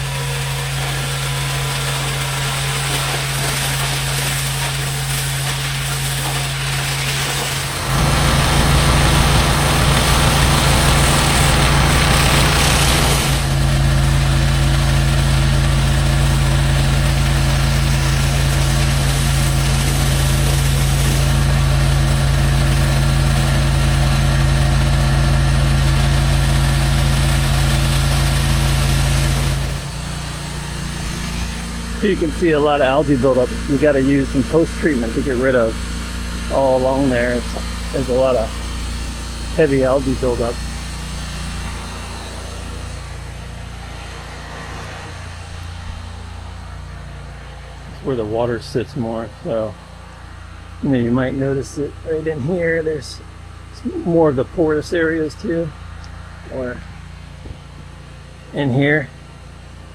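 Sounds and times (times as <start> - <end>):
hiss of spray: 0.0 - 13.6
pressure washer engine hum: 0.0 - 59.9.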